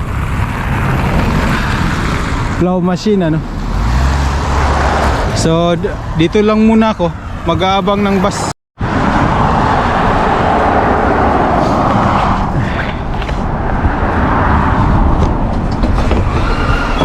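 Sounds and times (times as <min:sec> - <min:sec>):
vehicles passing: 0:00.0 - 0:17.0.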